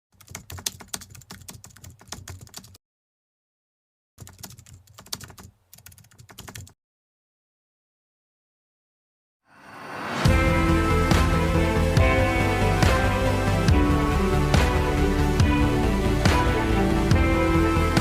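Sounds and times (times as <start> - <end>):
keyboard typing clicks: 4.2 - 6.8.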